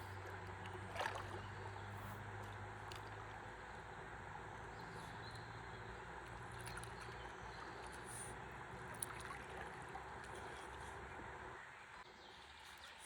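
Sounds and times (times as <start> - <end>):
river water lapping against paddleboard: 0.0 - 3.5, 6.4 - 11.1.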